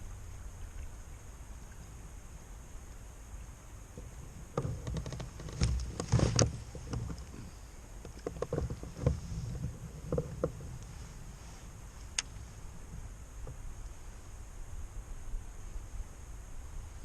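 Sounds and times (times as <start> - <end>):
low rumble of wind and water: 0.0 - 17.0
gear knocking on kayak: 4.0 - 10.8.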